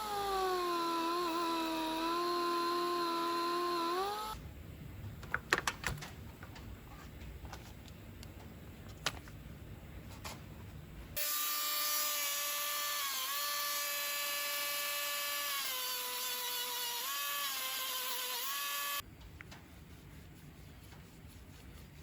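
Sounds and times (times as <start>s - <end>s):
electric power tool motor whining: 0.0s - 4.4s, 11.2s - 19.0s.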